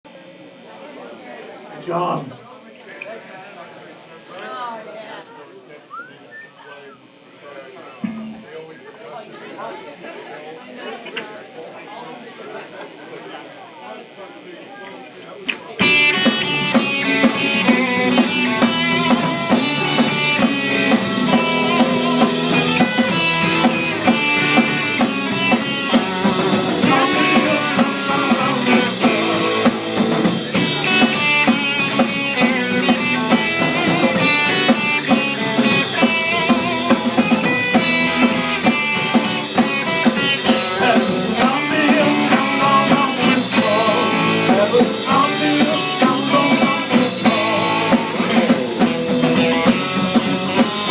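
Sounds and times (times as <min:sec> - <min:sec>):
surf rock band playing: 0:08.0 - 0:08.5, 0:15.5 - 0:50.9.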